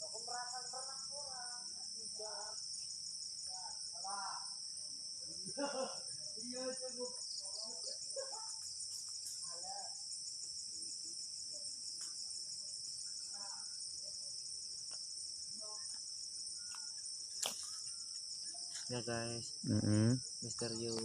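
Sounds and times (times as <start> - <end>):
insect chorus chirring: 0.0 - 21.0.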